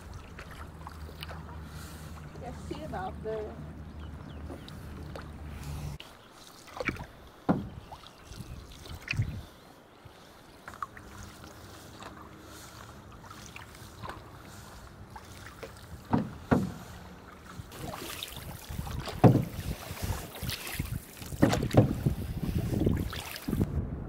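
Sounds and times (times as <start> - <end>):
paddle pulling through water: 0.0 - 23.7
paddle splashes: 0.0 - 23.7
wind on microphone: 7.6 - 9.6, 15.9 - 24.0
water hissing along hull: 9.4 - 23.7.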